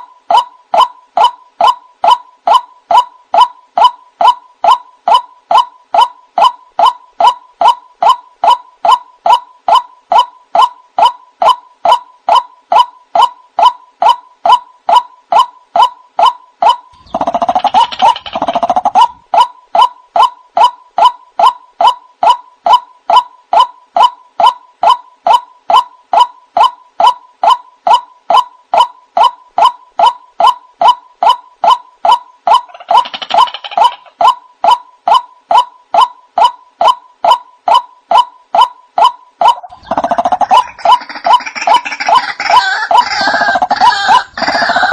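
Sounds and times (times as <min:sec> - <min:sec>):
waterhen calling: 0:17.0 - 0:19.9, 0:39.4 - 0:44.9.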